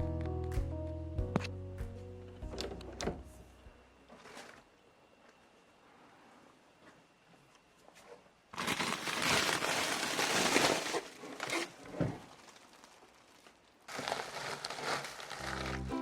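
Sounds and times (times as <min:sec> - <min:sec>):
rustling and crinkling material: 0:07.8 - 0:16.0.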